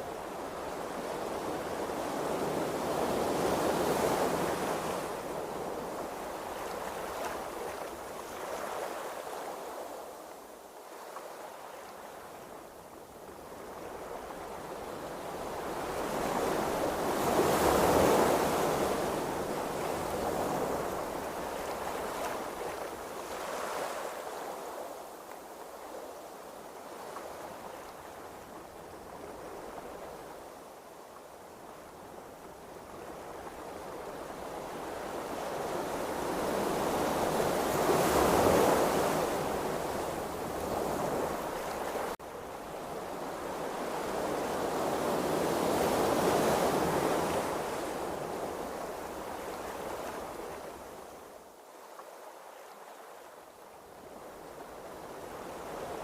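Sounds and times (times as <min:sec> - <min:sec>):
ocean waves washing: 0:33.1 - 0:51.1.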